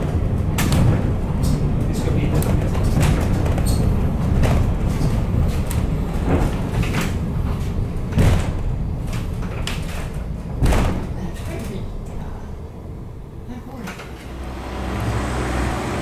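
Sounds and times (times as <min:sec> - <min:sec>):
train knocks and rattles: 0:00.0 - 0:16.0
electric train running: 0:14.2 - 0:16.0.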